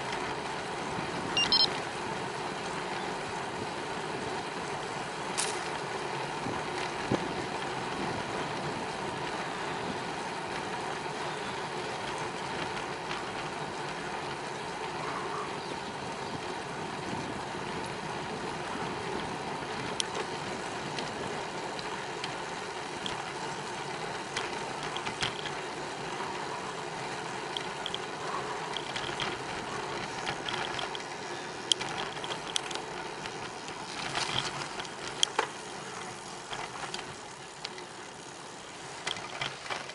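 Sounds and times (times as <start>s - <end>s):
bicycle tyres rolling hiss: 0.0s - 39.9s
sharp rattling clicks: 30.0s - 37.9s.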